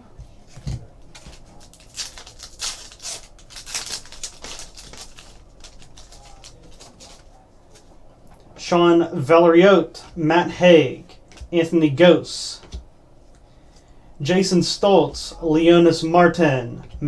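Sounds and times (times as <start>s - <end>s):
wrapper and cards crinkling: 1.1s - 7.9s.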